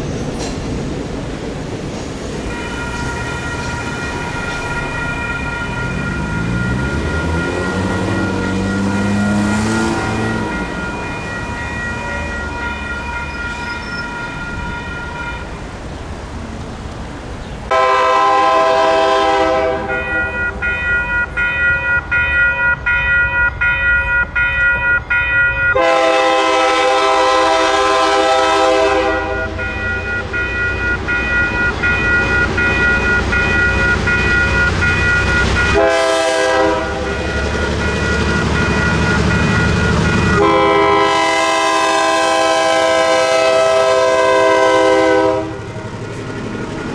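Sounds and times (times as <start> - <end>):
train rumbling on rails: 0.0 - 46.9
train air horn blasts: 2.5 - 15.5, 17.7 - 20.5, 25.7 - 30.0, 35.5 - 37.9, 40.0 - 45.7.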